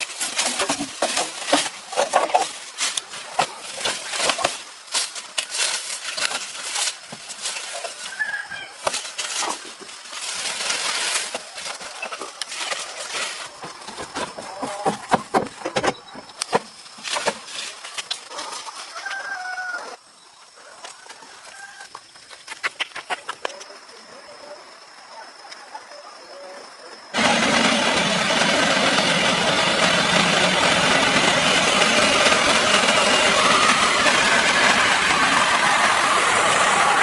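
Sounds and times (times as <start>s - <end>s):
sharp knocks and clatter: 0.0s - 4.7s
chickens clucking: 1.5s - 4.6s.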